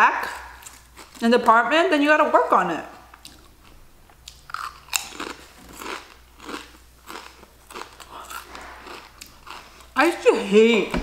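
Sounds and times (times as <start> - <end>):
potato chips crunching: 0.2 - 1.5, 3.1 - 10.4.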